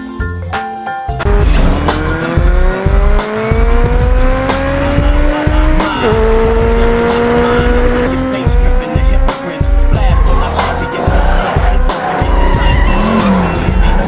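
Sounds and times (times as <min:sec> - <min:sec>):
thumping music beat: 0:00.1 - 0:14.0
race car engine revving: 0:01.2 - 0:14.0.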